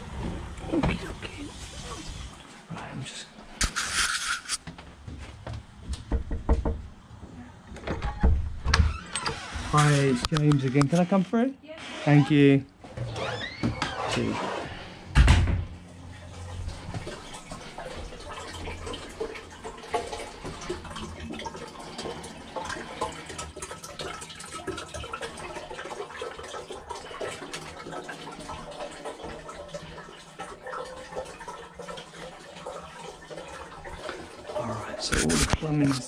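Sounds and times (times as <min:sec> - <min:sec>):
water running and trickling: 0:00.0 - 0:04.6, 0:15.8 - 0:36.0.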